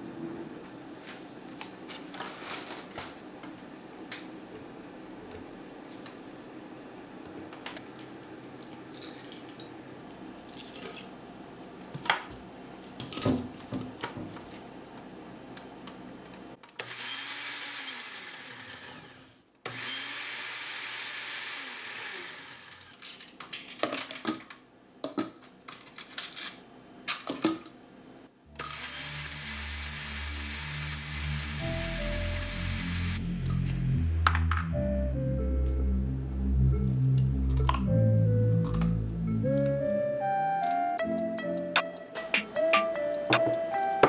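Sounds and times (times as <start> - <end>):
blender running: 16.8 - 23.0, 28.5 - 33.2.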